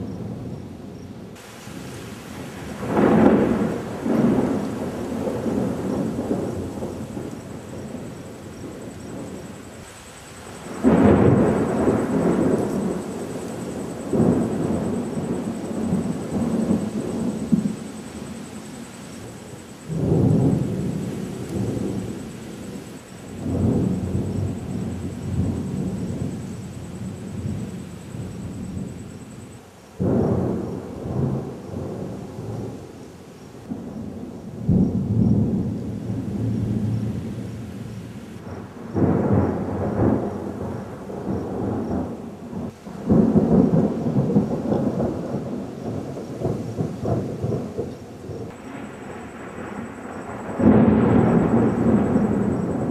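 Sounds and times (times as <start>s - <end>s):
slowed thunder rumbling: 0.0s - 32.9s, 33.6s - 52.9s.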